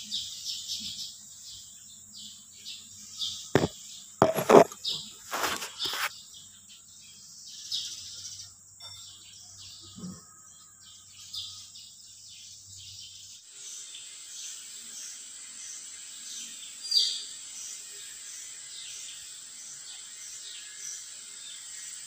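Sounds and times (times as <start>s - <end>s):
birds chirping: 0.0s - 22.0s
sharp knocks: 3.6s - 4.8s
crickets chirping: 10.3s - 22.0s.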